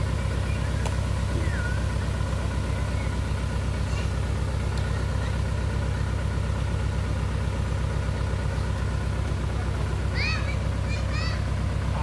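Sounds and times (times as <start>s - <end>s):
truck engine idling: 0.0s - 12.0s
faint bird chirps: 0.2s - 2.0s, 2.6s - 4.1s.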